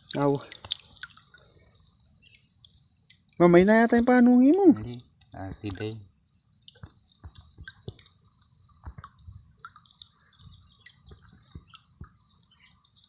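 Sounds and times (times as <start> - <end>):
wet squelches in mud: 0.0 - 6.0.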